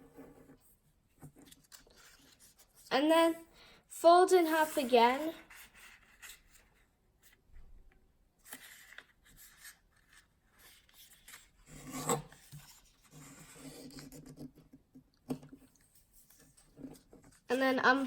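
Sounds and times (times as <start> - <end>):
paper rustling and rubbing: 0.0 - 3.0, 4.4 - 7.5, 8.4 - 14.6.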